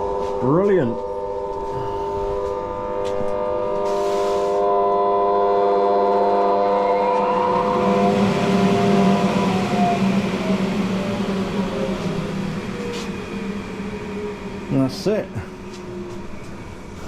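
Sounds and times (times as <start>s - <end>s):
electric blower fan whine: 1.0s - 17.0s
rushing air hiss: 3.8s - 4.6s.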